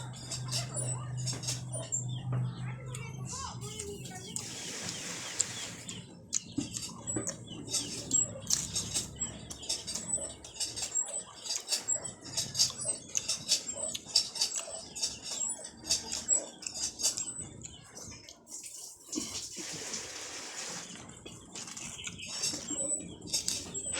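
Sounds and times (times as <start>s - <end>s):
chewing and lip-smacking: 3.7s - 18.8s, 20.9s - 23.9s.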